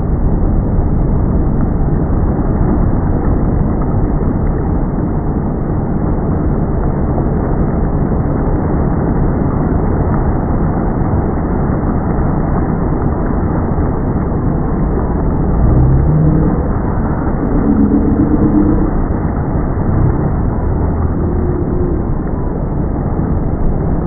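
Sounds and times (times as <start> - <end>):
motorboat engine rumble: 0.0 - 24.0
short rising tone: 15.5 - 22.5.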